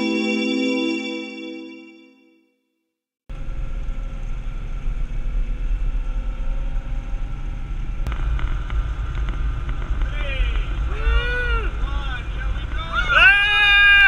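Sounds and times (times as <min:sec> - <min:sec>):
vehicle rumble while driving: 0:03.3 - 0:14.0.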